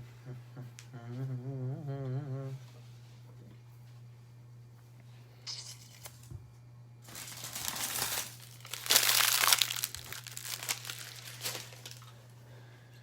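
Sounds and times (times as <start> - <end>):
plastic packaging crinkling: 7.0 - 12.2.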